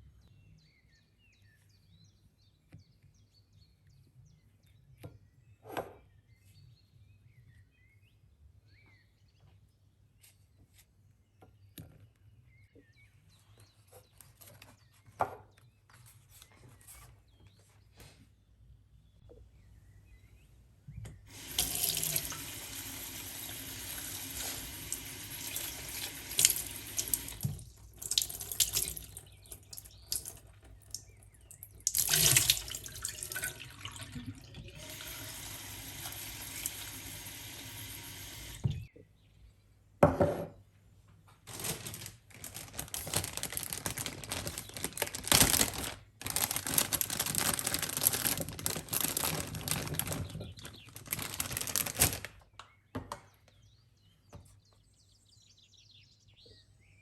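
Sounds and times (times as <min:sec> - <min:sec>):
water running from tap: 0:21.3 - 0:38.9.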